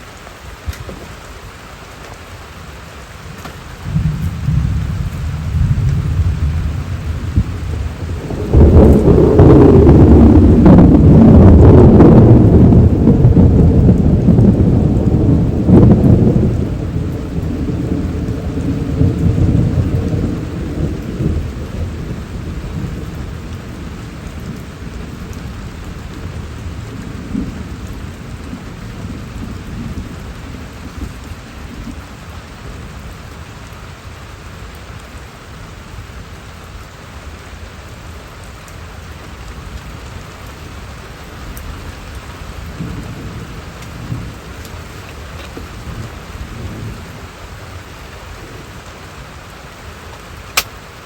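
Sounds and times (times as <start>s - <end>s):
steady rain falling: 0.0s - 51.0s
thunder rumbling: 2.6s - 33.4s, 41.7s - 47.6s.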